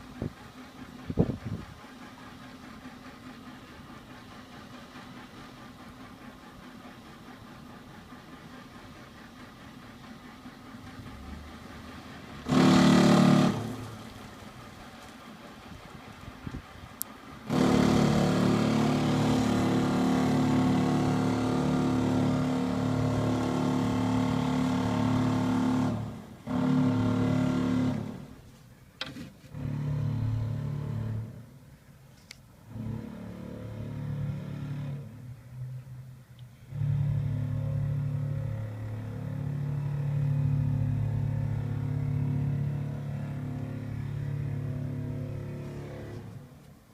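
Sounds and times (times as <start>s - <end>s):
alarm droning blasts: 36.6s - 46.4s.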